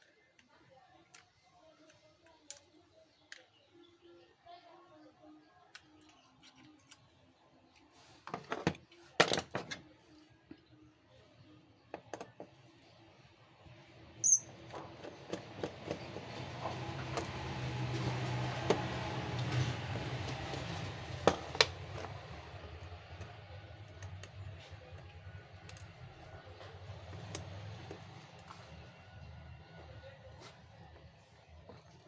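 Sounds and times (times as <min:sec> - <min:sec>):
tools clicking and tapping: 0:20.2 - 0:28.6.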